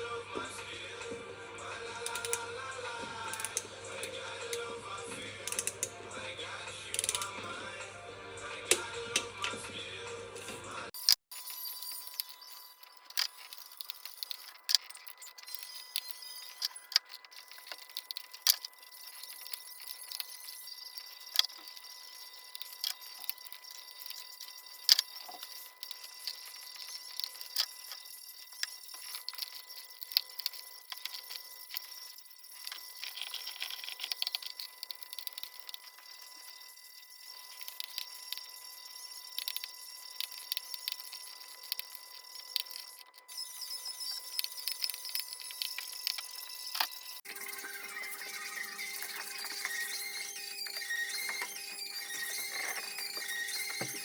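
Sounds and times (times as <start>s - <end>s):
faint steady high tone: 11.1s - 54.0s.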